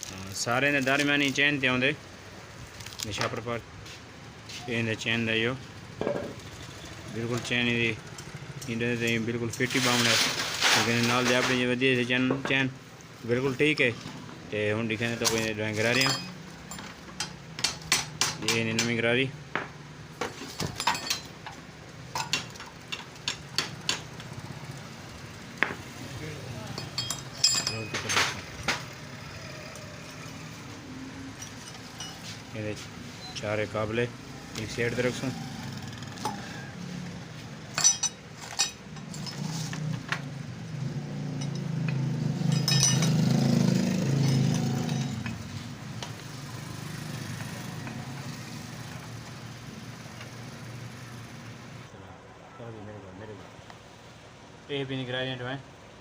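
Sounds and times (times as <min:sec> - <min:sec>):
metal tools clinking: 0:08.1 - 0:11.8, 0:15.1 - 0:19.0, 0:20.2 - 0:24.4, 0:26.6 - 0:32.6, 0:37.7 - 0:40.0, 0:41.2 - 0:46.2.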